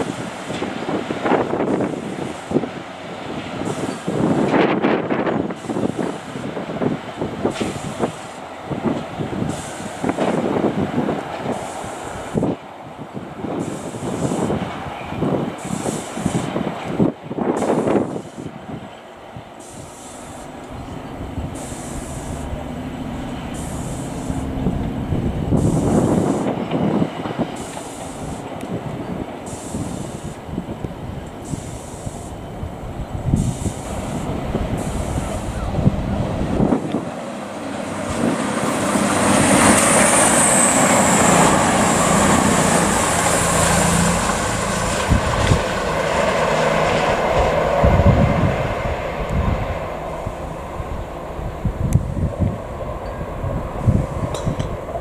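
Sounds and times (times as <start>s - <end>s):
diesel train engines running: 0.0s - 55.0s
train wheels clattering and squealing: 3.7s - 4.6s, 14.0s - 17.0s, 37.9s - 45.6s
high whine: 19.6s - 55.0s.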